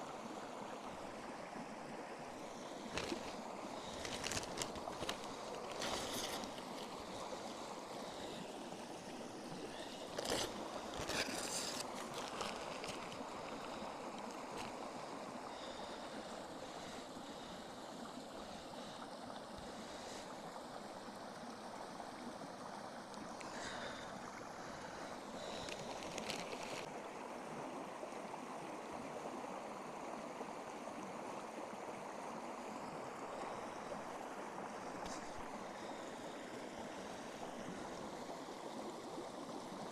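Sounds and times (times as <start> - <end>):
rushing flowing water: 0.0 - 39.9
short crackles: 2.9 - 7.0, 25.4 - 26.9.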